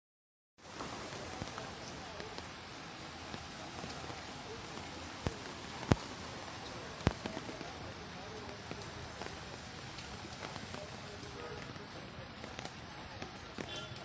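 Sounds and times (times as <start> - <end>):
heavy rain hissing: 0.6 - 14.0
sharp drip-like knocks: 3.2 - 14.0.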